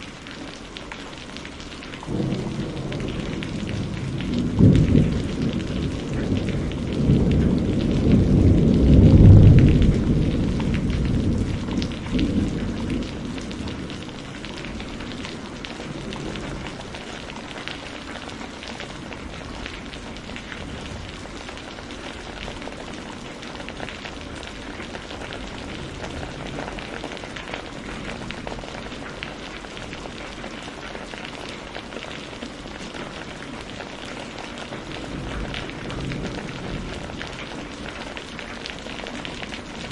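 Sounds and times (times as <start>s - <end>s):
steady rain falling: 0.0s - 39.9s
rolling thunder rumble: 2.1s - 30.2s, 34.8s - 39.9s.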